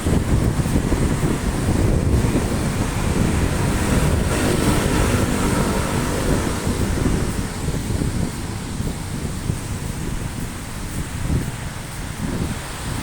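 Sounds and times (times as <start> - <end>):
heavy rain hissing: 0.0 - 13.0
wind buffeting microphone: 0.0 - 13.0.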